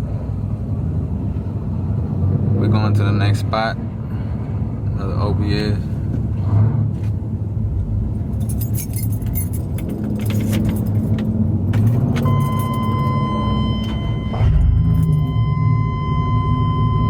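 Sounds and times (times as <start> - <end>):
vehicle engine rumbling: 0.0 - 17.0
jingling rattles: 8.2 - 12.9
high electronic tone: 12.3 - 17.0.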